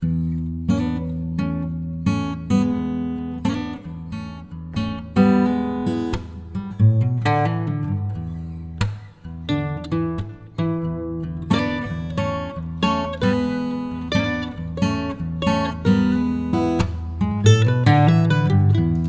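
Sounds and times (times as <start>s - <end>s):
acoustic guitar strumming: 0.0s - 19.0s
picked guitar notes: 4.7s - 19.0s.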